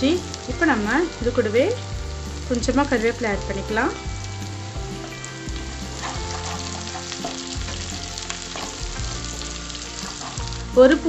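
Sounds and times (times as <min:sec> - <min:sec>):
food sizzling in hot oil: 0:00.0 - 0:11.0
wooden spatula stirring: 0:05.0 - 0:10.5.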